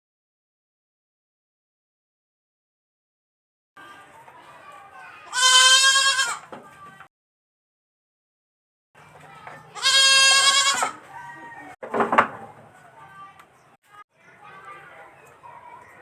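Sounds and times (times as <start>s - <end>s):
baby goat bleating: 5.2s - 6.5s, 9.7s - 11.0s.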